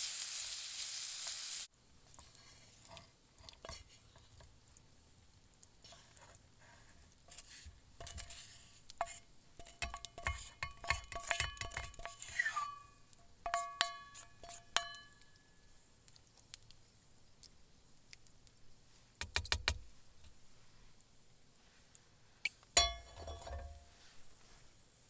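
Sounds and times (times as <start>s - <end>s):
metal utensil scraping cookware: 7.3s - 15.2s, 22.8s - 24.0s.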